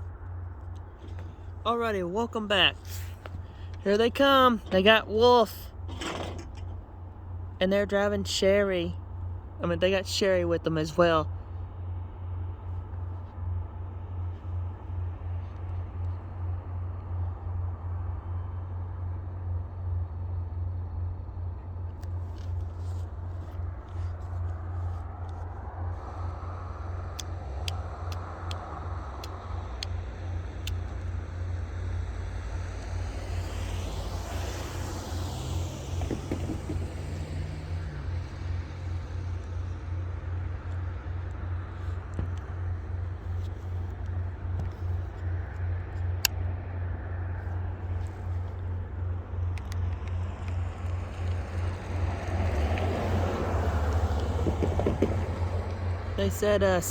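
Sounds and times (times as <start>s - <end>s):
diesel locomotives droning past: 0.0s - 56.9s.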